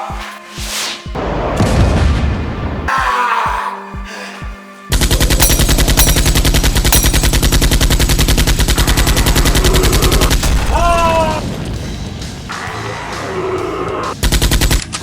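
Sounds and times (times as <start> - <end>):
automatic gunfire: 4.9 - 10.4.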